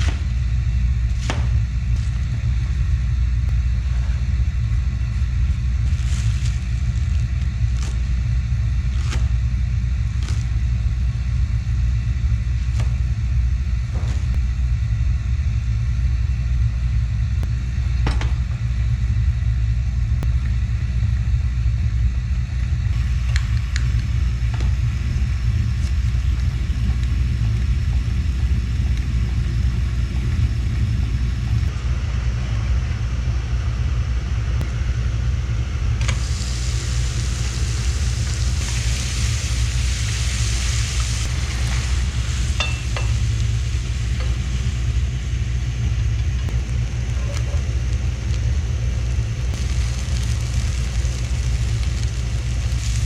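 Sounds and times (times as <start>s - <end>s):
steady low engine rumble: 0.0s - 53.0s
hiss: 22.9s - 31.7s, 36.0s - 45.2s, 49.6s - 53.0s.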